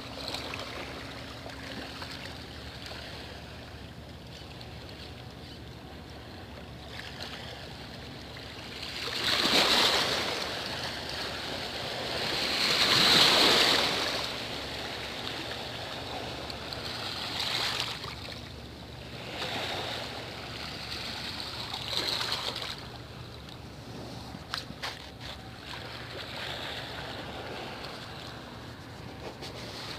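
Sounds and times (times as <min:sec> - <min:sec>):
sea waves washing in and out: 0:06.8 - 0:29.9.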